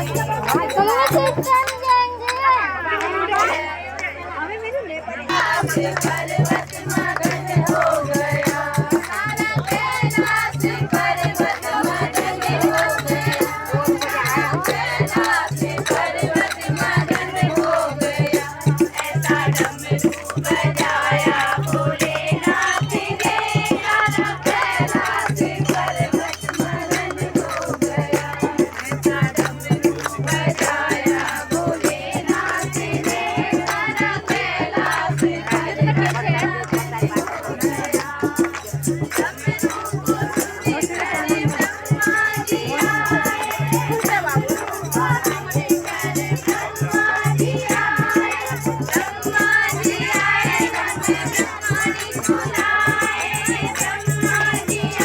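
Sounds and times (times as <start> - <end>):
people singing folk music: 0.0 - 55.0
fast shaking rattle: 5.3 - 55.0.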